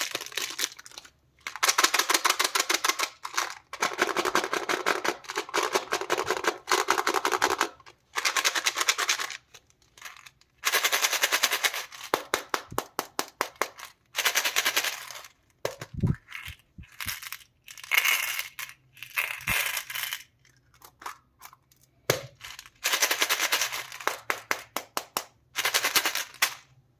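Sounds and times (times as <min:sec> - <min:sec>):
plastic packaging crinkling: 0:00.0 - 0:01.8.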